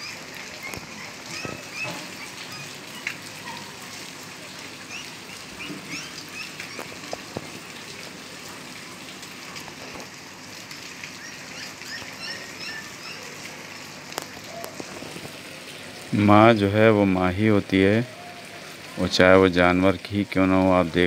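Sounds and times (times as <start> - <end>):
sharp water drips: 0.0 - 21.0
steady rain: 0.0 - 21.0
small birds chirping: 4.9 - 6.9, 11.2 - 13.4.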